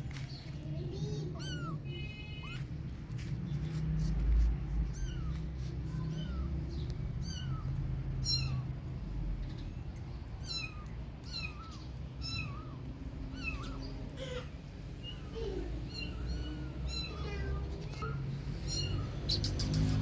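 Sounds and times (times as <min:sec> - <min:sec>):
kitten meowing: 0:01.2 - 0:02.8, 0:04.7 - 0:08.8, 0:10.3 - 0:20.0.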